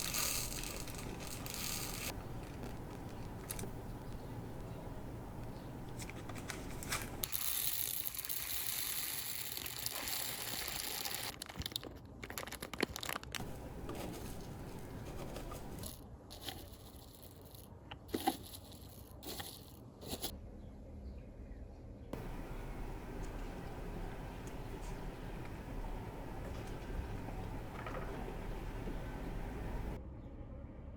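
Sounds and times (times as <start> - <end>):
plastic packaging crinkling: 0.0 - 17.5
small clicks: 0.0 - 20.3, 22.2 - 30.0.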